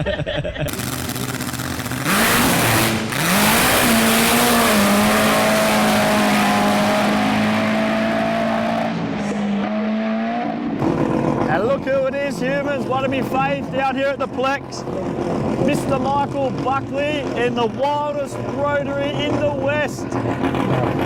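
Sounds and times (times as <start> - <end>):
rushing noise: 0.7 - 9.6
drag racing car engine revving: 0.7 - 21.0.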